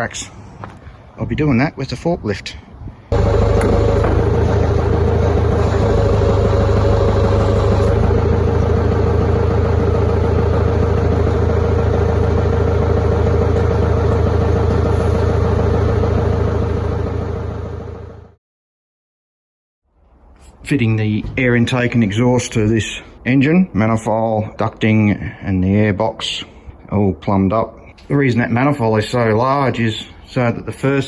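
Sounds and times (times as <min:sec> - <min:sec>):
forklift engine running: 0:03.1 - 0:18.4.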